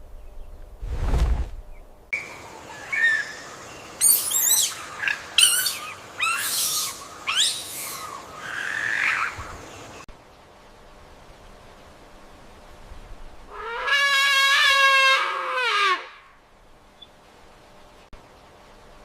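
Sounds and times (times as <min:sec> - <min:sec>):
bird chirps and screechy calls: 0:02.2 - 0:10.0.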